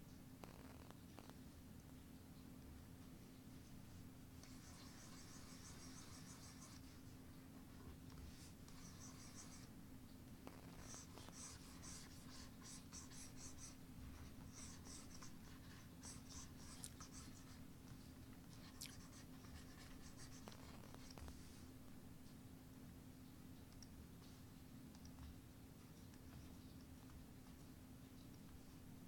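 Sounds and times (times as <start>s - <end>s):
low steady hum: 0.0s - 29.0s
drawing tool scratching: 4.4s - 6.9s, 8.4s - 9.7s.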